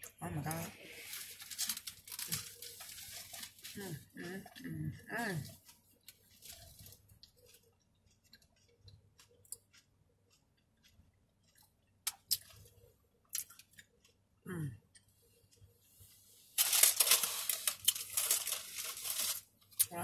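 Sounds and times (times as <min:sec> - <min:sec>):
chewing taco: 0:00.0 - 0:20.0
paper wrapper crinkling: 0:00.5 - 0:04.1, 0:05.5 - 0:07.6, 0:16.6 - 0:19.9
mouth clicks and smacks: 0:07.2 - 0:12.6.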